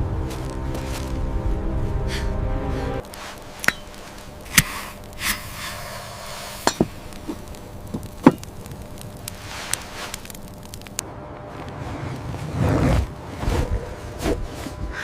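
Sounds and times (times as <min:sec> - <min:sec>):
background music: 0:00.0 - 0:03.1
sharp knocks and cracks: 0:06.7 - 0:11.0.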